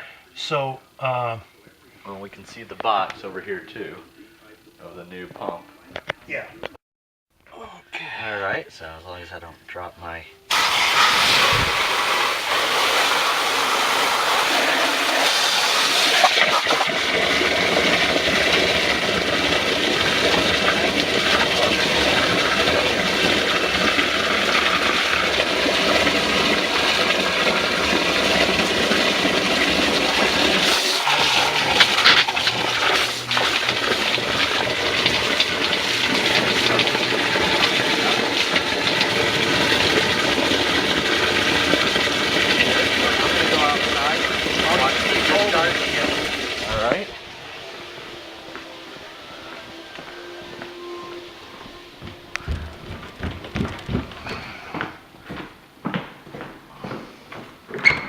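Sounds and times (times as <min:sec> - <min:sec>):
water rushing into pit: 0:10.5 - 0:47.1.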